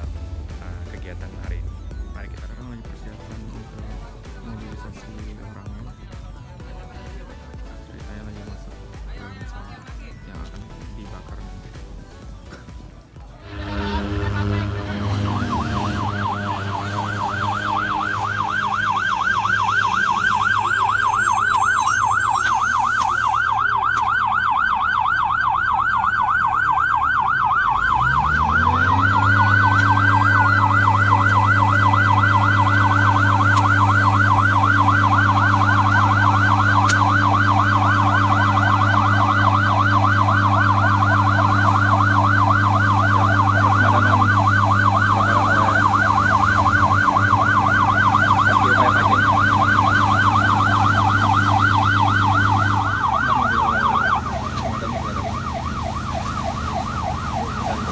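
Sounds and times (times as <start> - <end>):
low steady drone: 13.4 - 57.9
siren fast warble: 13.4 - 57.9
slower wailing siren tone: 13.4 - 57.9.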